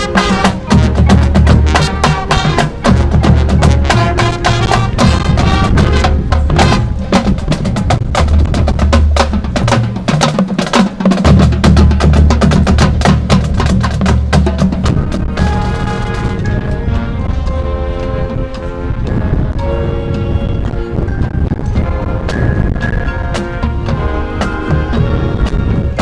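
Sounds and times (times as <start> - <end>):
rapid drum strokes: 0.0 - 16.5
marching band playing: 0.0 - 26.0.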